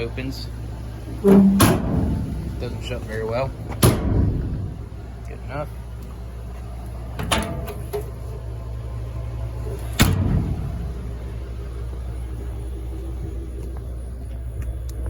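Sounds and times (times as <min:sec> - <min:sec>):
steady low rumble: 0:00.0 - 0:07.2, 0:08.2 - 0:15.0
metal toolbox door slamming: 0:01.2 - 0:02.6, 0:03.8 - 0:04.7.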